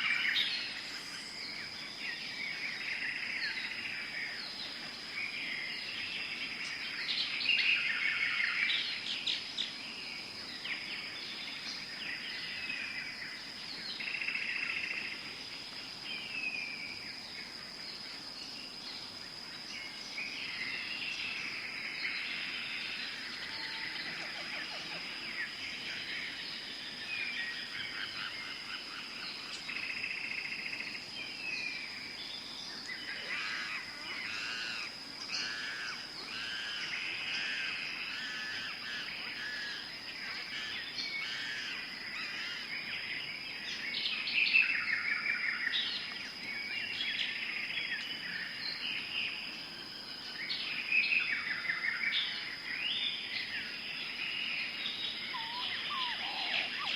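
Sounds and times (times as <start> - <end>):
birds calling: 32.9 - 43.8, 51.4 - 56.9
down-slurred whistles: 55.2 - 56.9.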